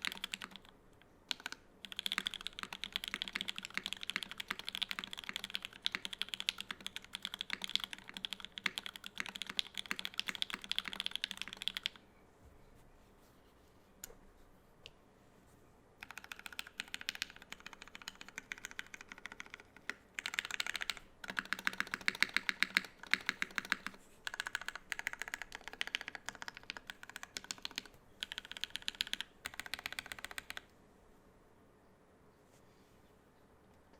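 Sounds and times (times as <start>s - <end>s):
mechanical keyboard typing: 0.0s - 12.0s, 16.0s - 30.7s.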